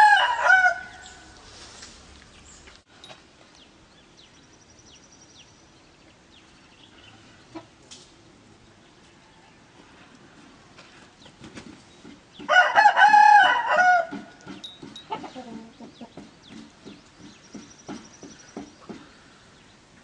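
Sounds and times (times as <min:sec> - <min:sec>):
rooster crowing: 0:00.0 - 0:01.2, 0:12.5 - 0:14.4
chickens clucking: 0:07.0 - 0:07.8, 0:14.1 - 0:19.2.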